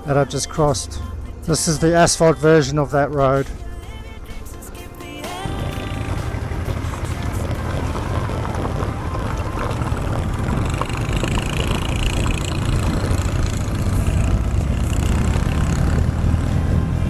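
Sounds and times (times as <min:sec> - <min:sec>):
motorcycle engine running: 0:05.2 - 0:17.0
wind noise on camera: 0:05.5 - 0:17.0.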